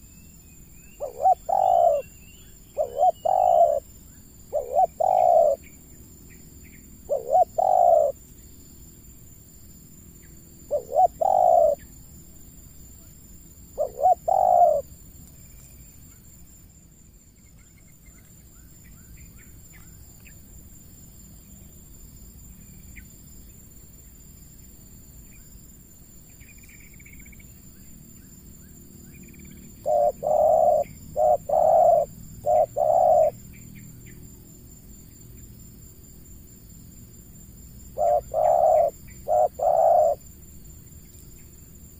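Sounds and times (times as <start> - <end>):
faint small-bird chirps: 0.0 - 8.5, 10.2 - 12.0, 17.3 - 20.4, 26.3 - 34.2
dove cooing: 1.0 - 2.1, 2.7 - 3.9, 4.5 - 5.6, 7.1 - 8.2, 10.7 - 11.8, 13.8 - 14.9, 29.8 - 33.4, 37.9 - 40.2.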